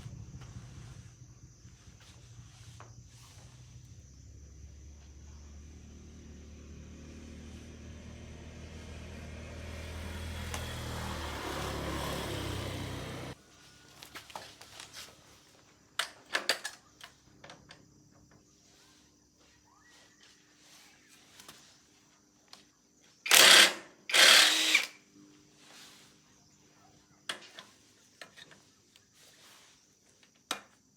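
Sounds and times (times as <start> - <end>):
motor engine humming: 0.0 - 3.1, 4.2 - 13.4.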